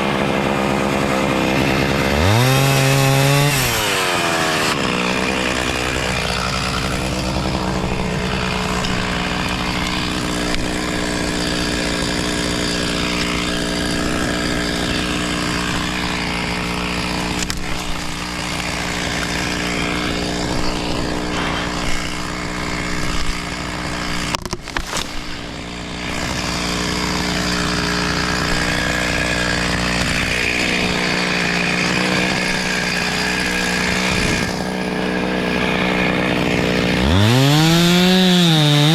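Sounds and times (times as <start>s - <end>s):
chainsaw cutting a tree: 0.0s - 38.9s.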